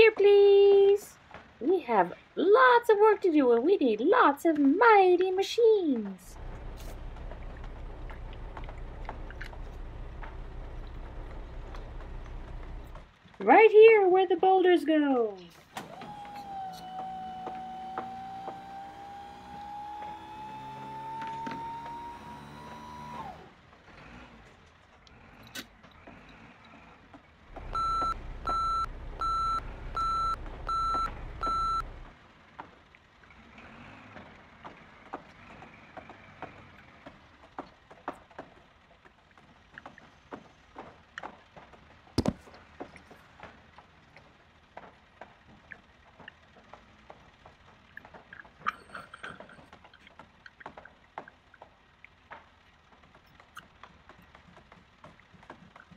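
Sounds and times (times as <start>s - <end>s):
reversing beeps: 27.7s - 31.9s.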